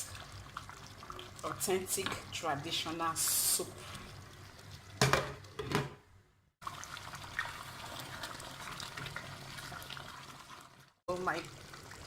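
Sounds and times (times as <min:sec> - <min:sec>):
soup bubbling and popping: 0:00.0 - 0:02.3, 0:06.6 - 0:12.0.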